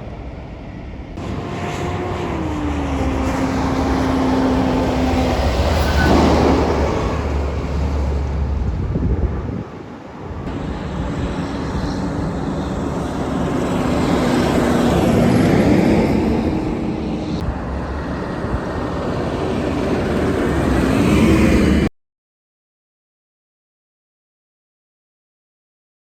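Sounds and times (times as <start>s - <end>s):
vehicle engine passing: 1.2s - 21.9s.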